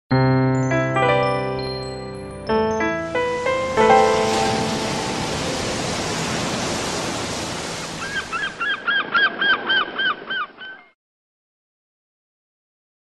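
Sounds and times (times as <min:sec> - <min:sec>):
steady rushing noise: 0:03.0 - 0:08.7
bird calling rapidly: 0:08.0 - 0:11.0.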